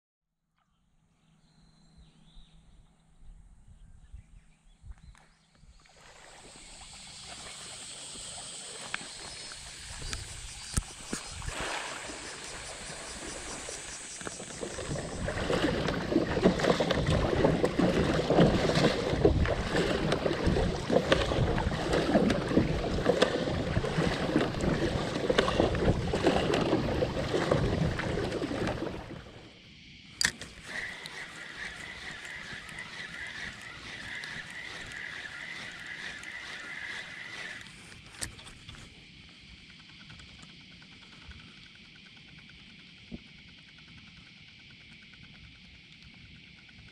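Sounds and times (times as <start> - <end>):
water lapping and splashing: 5.1 - 29.6, 30.2 - 39.0.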